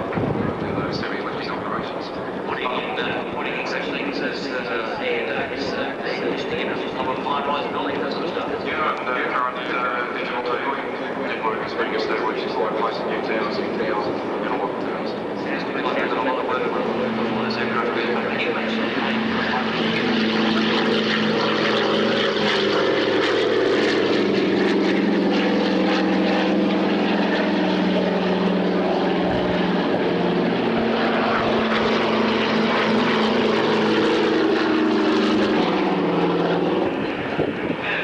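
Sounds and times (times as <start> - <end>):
light aircraft engine drone: 0.0 - 38.0.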